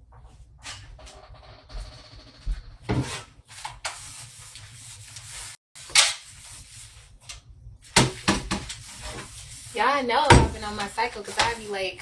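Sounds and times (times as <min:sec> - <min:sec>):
rubbing and rustling handling: 0:03.0 - 0:12.0.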